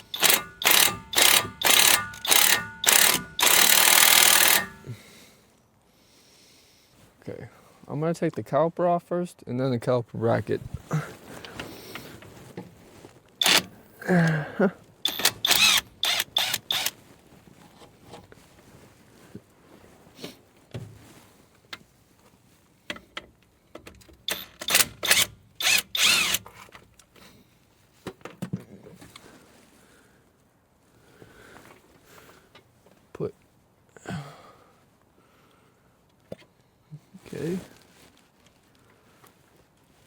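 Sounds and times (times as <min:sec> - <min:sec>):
impact wrench bursts: 0:00.0 - 0:05.0, 0:13.4 - 0:13.7, 0:15.0 - 0:17.0, 0:24.3 - 0:26.5.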